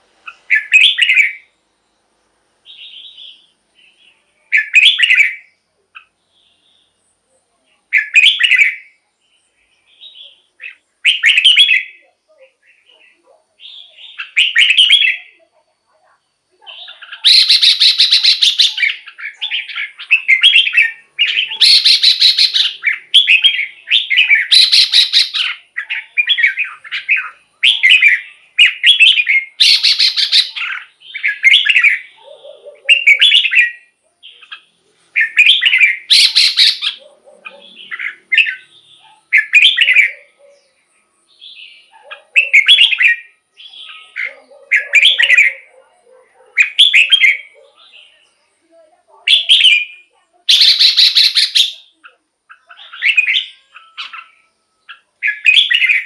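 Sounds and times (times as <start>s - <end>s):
bird singing whistled phrases: 0.3s - 1.5s, 4.5s - 6.7s, 7.9s - 9.0s, 9.9s - 12.0s, 13.6s - 15.4s, 16.7s - 32.1s, 35.2s - 37.0s, 42.4s - 45.7s, 49.3s - 56.0s.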